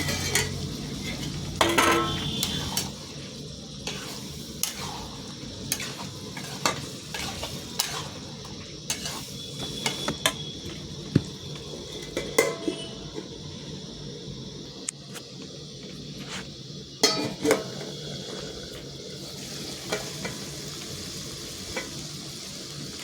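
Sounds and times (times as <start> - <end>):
spoon scraping against pan: 0.0 - 3.2, 3.8 - 10.8
curry sizzling in a pan: 0.0 - 23.0.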